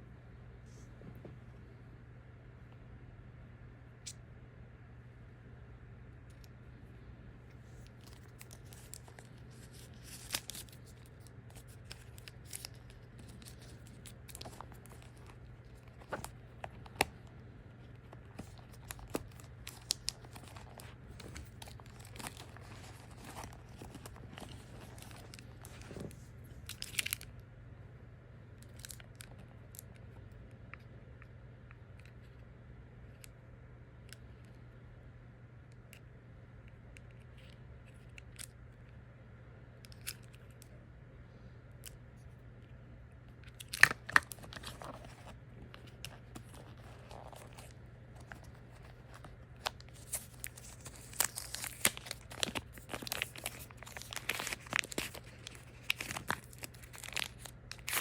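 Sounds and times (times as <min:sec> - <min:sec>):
steady low hum: 0:00.0 - 0:58.0
packaging crinkling and tearing: 0:07.7 - 0:27.3, 0:28.6 - 0:29.9, 0:43.4 - 0:58.0.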